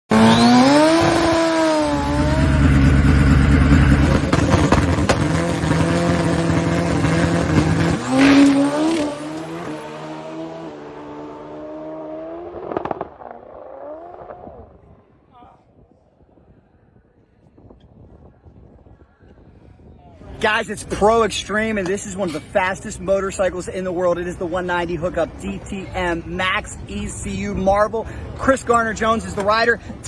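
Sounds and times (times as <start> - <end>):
motorcycle engine at high revs: 0.1 - 13.3
sharp engine pops: 4.2 - 5.4.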